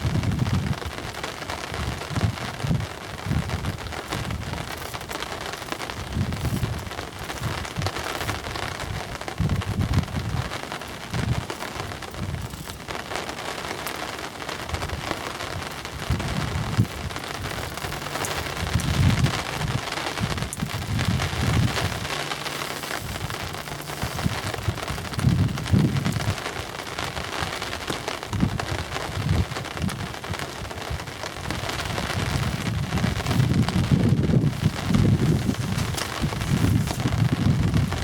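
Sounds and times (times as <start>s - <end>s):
hissing water: 3.2s - 9.5s, 10.1s - 28.0s.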